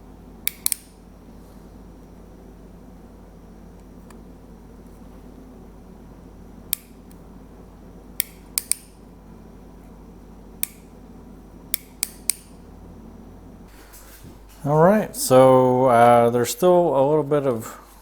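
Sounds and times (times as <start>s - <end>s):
steady low hum: 0.0s - 18.0s
soldering iron trigger clicks: 0.4s - 1.0s, 6.7s - 7.2s, 8.2s - 9.0s, 10.6s - 10.9s, 11.7s - 12.6s.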